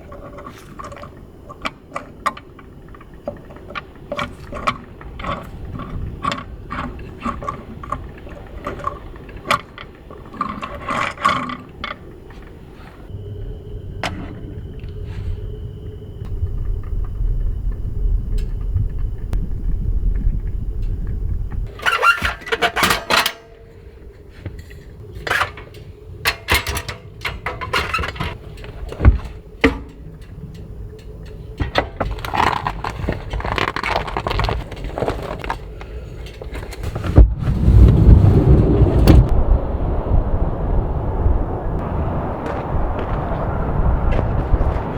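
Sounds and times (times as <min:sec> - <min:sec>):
gear clicking and knocking: 0:00.0 - 0:12.9, 0:16.2 - 0:37.9
wind rumbling on microphone: 0:00.0 - 0:44.9.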